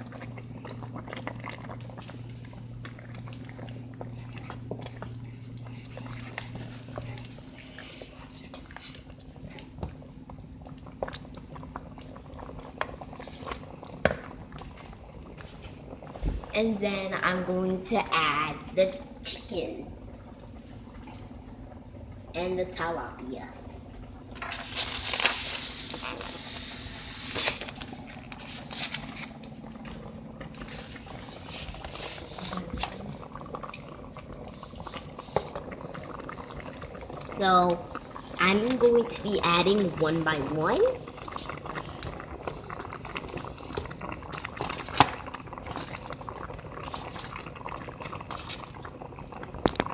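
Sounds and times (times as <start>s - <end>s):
soup simmering and bubbling: 0.0s - 49.9s
small pops and clicks: 49.6s - 49.9s.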